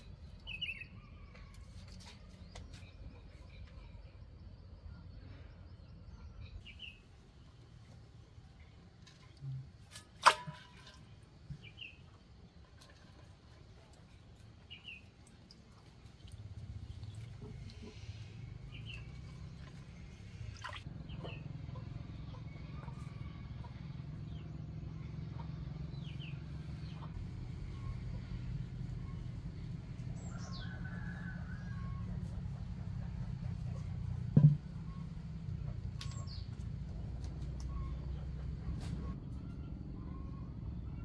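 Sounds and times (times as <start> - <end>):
quiet rural background noise: 0.0 - 41.0
low rumble: 24.1 - 41.0.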